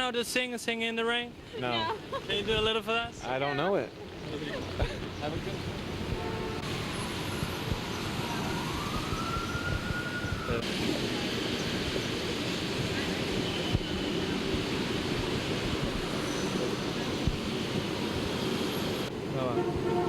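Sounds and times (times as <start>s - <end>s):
rain hiss: 1.4s - 19.9s
traffic on wet street: 1.6s - 20.0s
distant siren: 6.2s - 20.0s.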